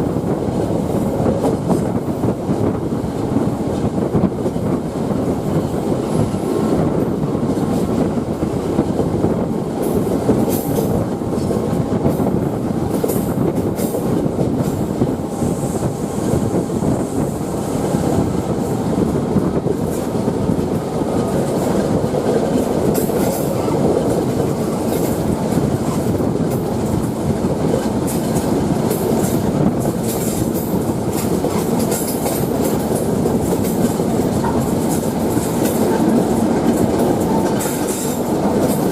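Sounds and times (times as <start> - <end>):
train wheels rumbling on rails: 0.0 - 38.9
running gear clicking and clacking: 19.8 - 38.9.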